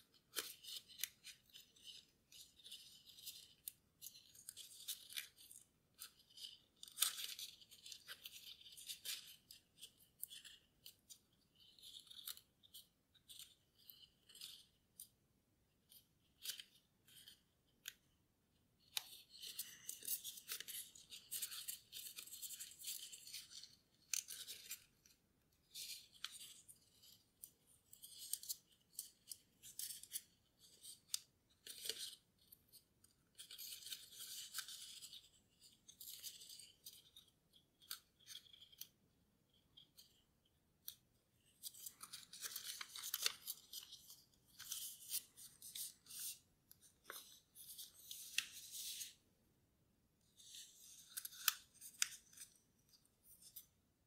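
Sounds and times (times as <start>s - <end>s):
paper rustling and crinkling: 41.5s - 49.2s.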